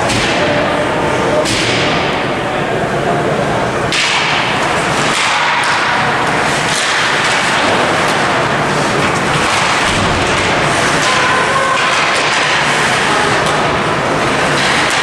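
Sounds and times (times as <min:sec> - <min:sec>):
ice rink game noise: 0:00.0 - 0:15.0
stick hitting puck: 0:00.1 - 0:00.6, 0:03.9 - 0:08.4, 0:09.0 - 0:13.7, 0:14.4 - 0:15.0.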